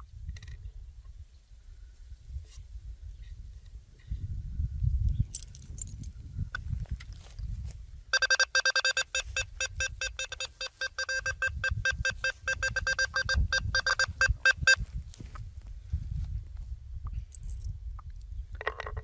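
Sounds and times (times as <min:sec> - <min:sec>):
metal detector short beeps: 0:08.1 - 0:14.8.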